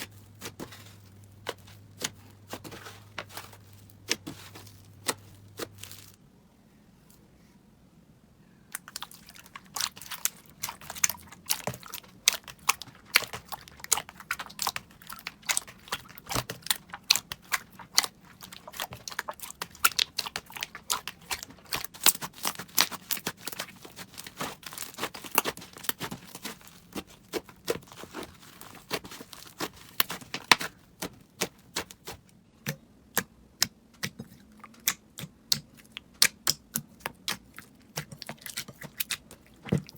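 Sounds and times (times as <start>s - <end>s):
slime crackling and popping: 8.8s - 32.2s, 33.2s - 39.9s.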